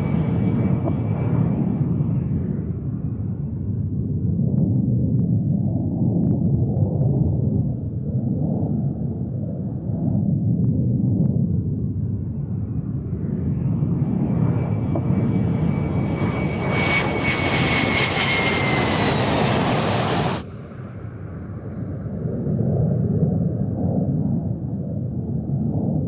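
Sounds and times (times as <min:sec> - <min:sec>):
jet engine rumble and whine: 0:00.0 - 0:26.0
high tone sliding down: 0:15.3 - 0:20.4.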